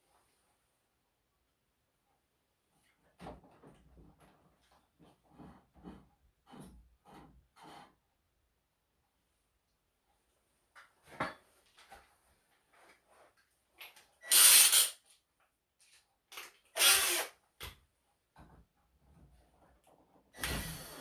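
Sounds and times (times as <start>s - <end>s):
power tool bursts: 14.2s - 15.0s, 16.8s - 17.3s, 20.4s - 21.0s.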